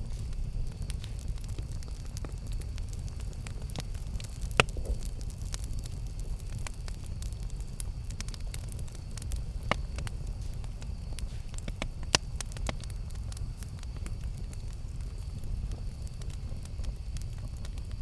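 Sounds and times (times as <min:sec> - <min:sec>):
campfire rumble: 0:00.0 - 0:18.0
wood crackling and popping: 0:00.0 - 0:18.0.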